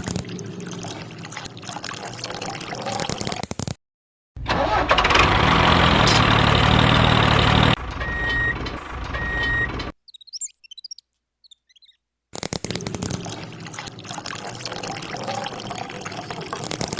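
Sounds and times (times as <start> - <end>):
loud motor running: 5.2 - 9.9
faint chirps: 8.0 - 12.0.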